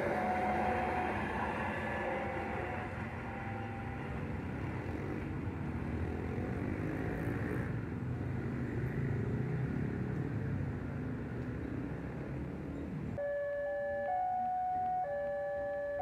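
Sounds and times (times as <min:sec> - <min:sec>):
diesel locomotive engine rumbling: 0:00.0 - 0:05.9.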